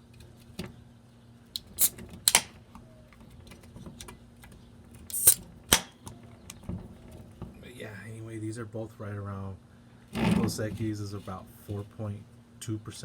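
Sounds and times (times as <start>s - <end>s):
hiss of escaping gas: 5.1s - 5.4s
beer cans cracking open: 5.1s - 6.0s.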